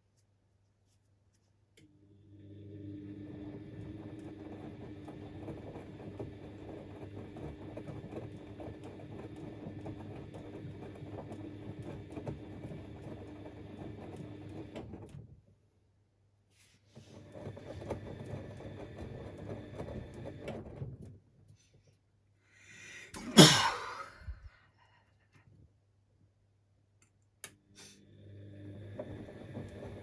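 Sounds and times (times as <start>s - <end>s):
washing machine motor hum: 2.0s - 15.4s, 16.9s - 21.2s, 28.0s - 30.0s.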